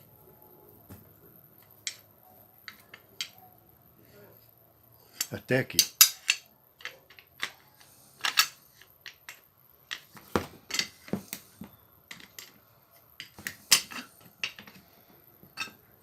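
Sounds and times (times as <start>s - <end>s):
metal and plastic parts clicking: 5.2s - 11.0s.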